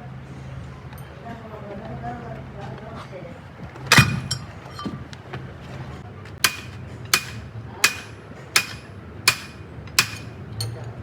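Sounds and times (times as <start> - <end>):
hammer striking metal: 3.9 - 4.5, 6.4 - 10.8.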